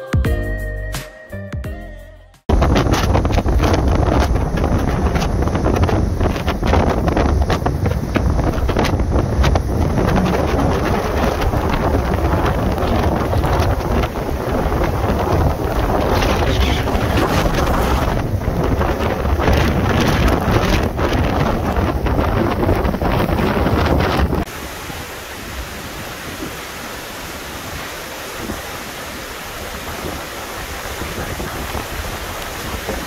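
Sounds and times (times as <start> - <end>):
strong wind buffeting microphone: 2.5 - 33.0.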